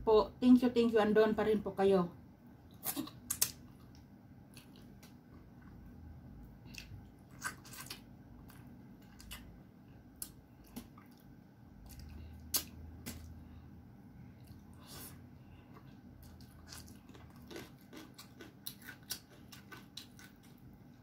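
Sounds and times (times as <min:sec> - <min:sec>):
wet chewing: 0:06.6 - 0:09.6, 0:15.7 - 0:20.7.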